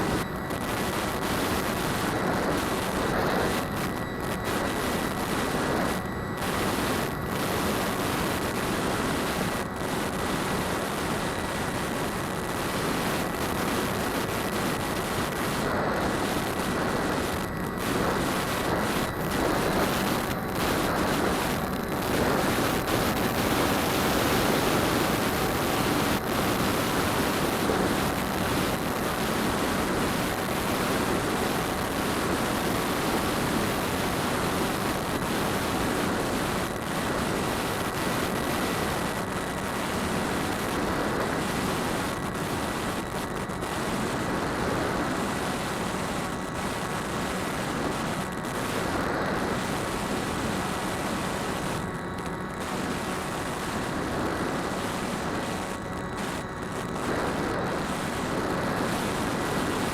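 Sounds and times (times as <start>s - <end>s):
faint high motor whine: 0.0s - 59.9s.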